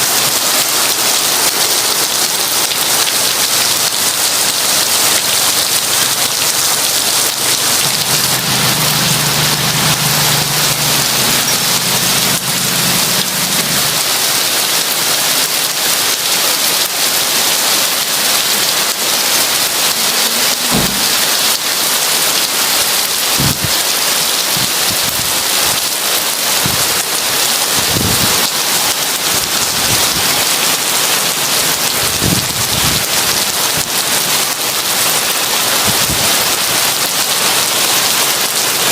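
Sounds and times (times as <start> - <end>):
heavy rain: 0.0 - 38.9
thunder rumbling: 6.9 - 14.1.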